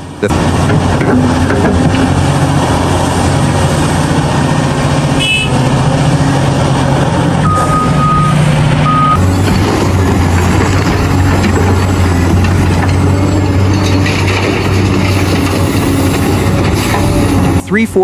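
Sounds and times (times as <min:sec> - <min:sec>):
heavy diesel engines running: 0:00.0 - 0:18.0
electronic beeps: 0:07.4 - 0:09.2
brief high tone: 0:07.5 - 0:09.2.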